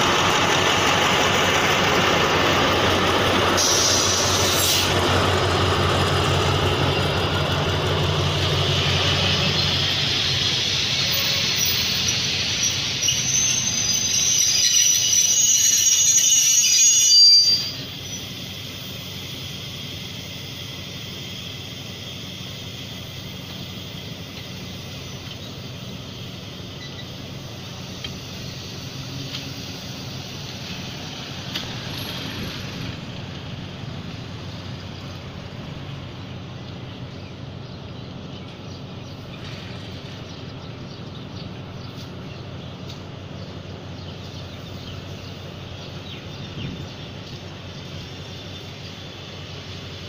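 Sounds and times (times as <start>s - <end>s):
high wheel squeal: 0.0s - 5.2s, 8.1s - 25.6s, 26.6s - 33.0s
train coaches rumbling: 0.0s - 50.0s.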